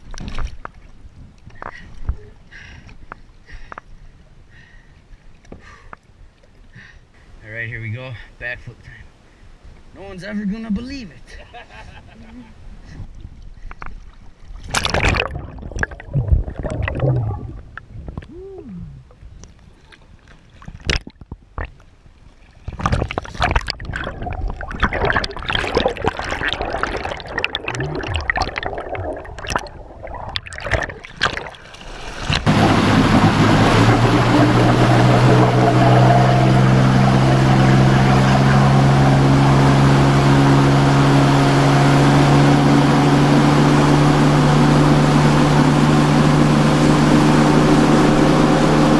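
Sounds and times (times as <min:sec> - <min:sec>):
water splashing and gurgling: 0:13.2 - 0:48.9
boat motor running: 0:32.5 - 0:48.9.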